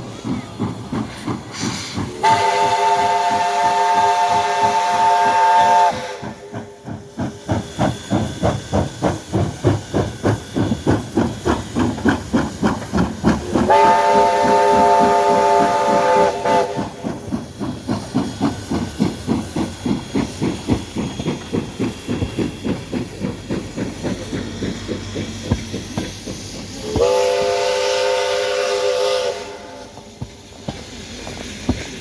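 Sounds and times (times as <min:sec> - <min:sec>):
steam hissing: 0:00.0 - 0:32.0
steam locomotive exhaust chuffs: 0:00.0 - 0:32.0
steam whistle: 0:01.6 - 0:06.5, 0:13.7 - 0:17.0, 0:26.8 - 0:30.0.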